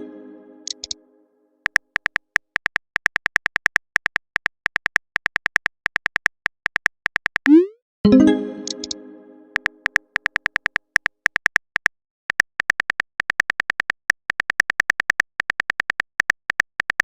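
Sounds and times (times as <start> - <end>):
keyboard typing clicks: 0.7 - 1.0, 7.3 - 17.0
message chime: 7.5 - 9.6.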